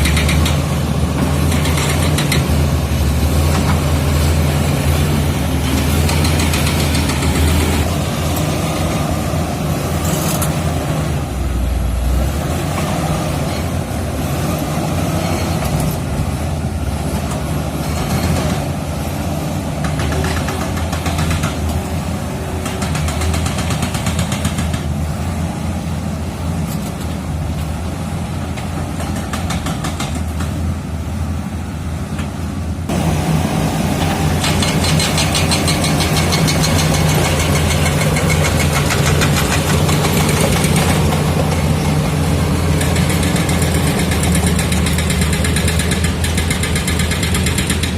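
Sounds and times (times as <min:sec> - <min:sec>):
bulldozer diesel engine running: 0:00.0 - 0:47.9
rapid clatter: 0:34.4 - 0:42.0.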